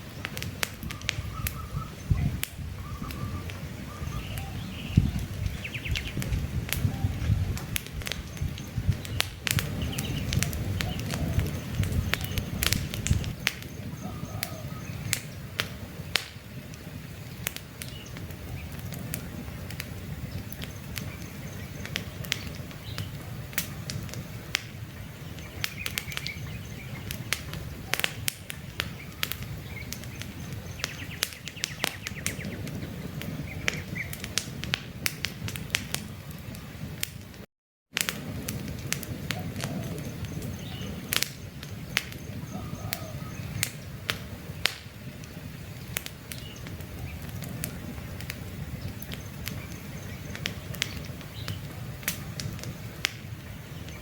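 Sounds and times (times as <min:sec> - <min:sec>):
birds chirping faintly: 0:00.0 - 0:34.2, 0:39.2 - 0:54.0
campfire crackling and popping: 0:00.0 - 0:54.0
low rush of flames: 0:00.0 - 0:54.0.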